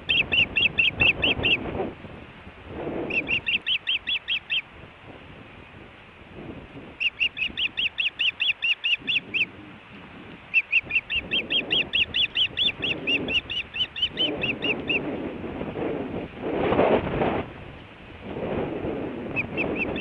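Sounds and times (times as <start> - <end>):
osprey chirping: 0.0 - 1.6, 3.1 - 4.7, 7.0 - 9.6, 10.5 - 15.0, 19.3 - 20.0
wind rumble on microphone: 0.0 - 20.0.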